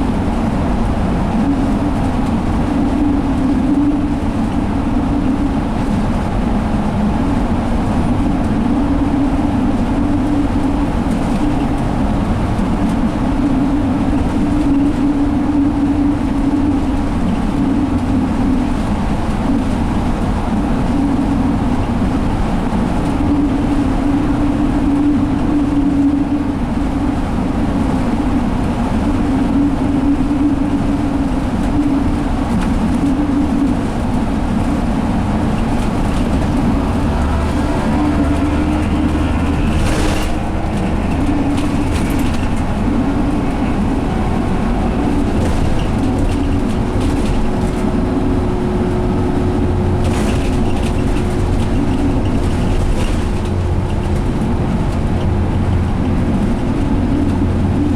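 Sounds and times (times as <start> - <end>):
bus diesel engine: 0.0 - 57.9
road rumble: 0.0 - 57.9
humming tone: 36.1 - 46.6.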